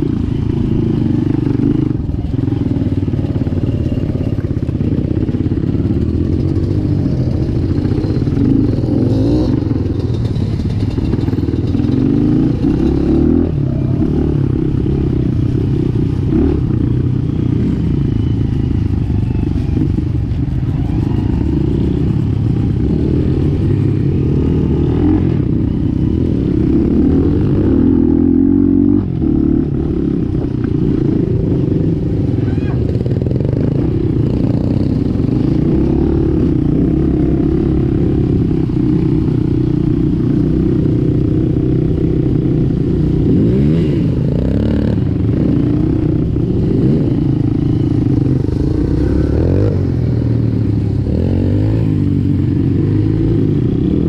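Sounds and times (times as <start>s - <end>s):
dirt bike engine revving: 20.8s - 54.0s.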